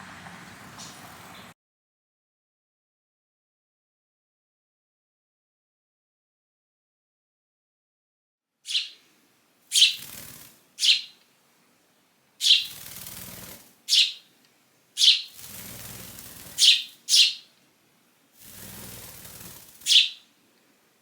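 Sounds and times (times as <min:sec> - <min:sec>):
sparrow chirping: 0:00.8 - 0:01.5, 0:08.7 - 0:09.0, 0:09.7 - 0:11.2, 0:12.4 - 0:14.3, 0:15.0 - 0:17.5, 0:18.4 - 0:20.3.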